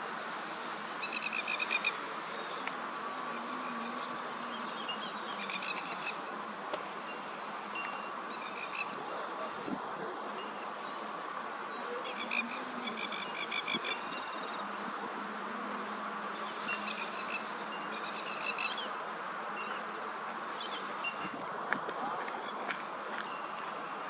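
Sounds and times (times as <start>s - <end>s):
steady background hiss: 0.0s - 24.0s.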